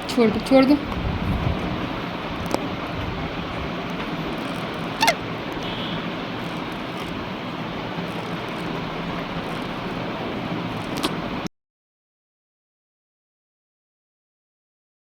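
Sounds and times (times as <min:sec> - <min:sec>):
steady rushing noise: 0:00.0 - 0:11.5
short falling squeak: 0:05.0 - 0:05.2.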